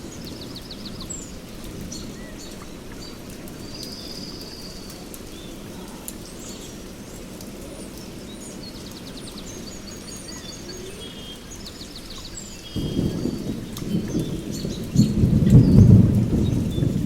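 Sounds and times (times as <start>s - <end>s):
steady rain: 0.0s - 17.0s
birds chirping and trilling: 7.8s - 17.0s.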